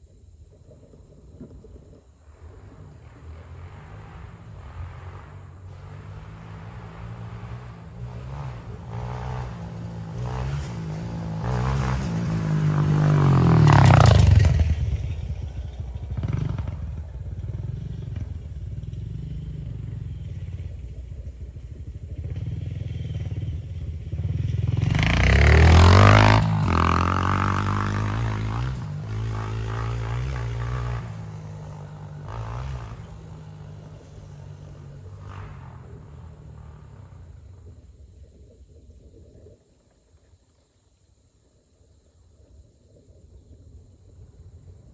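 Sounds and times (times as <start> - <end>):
dirt bike engine revving: 2.8 - 37.6.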